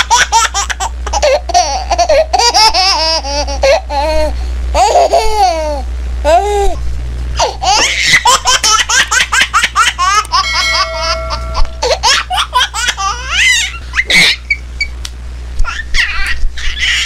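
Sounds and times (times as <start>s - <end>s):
low hum: 10.2s - 15.6s.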